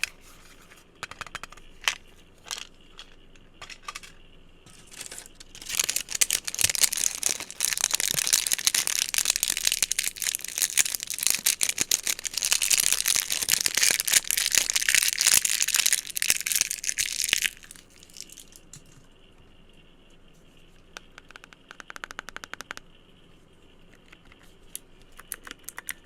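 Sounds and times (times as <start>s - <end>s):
crinkly material crushed by hands: 4.7s - 19.0s.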